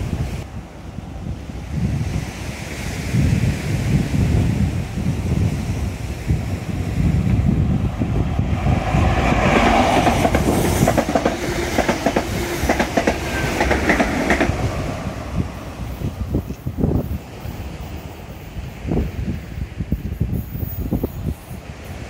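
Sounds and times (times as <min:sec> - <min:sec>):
train wheels clicking over joints: 0:08.8 - 0:14.9.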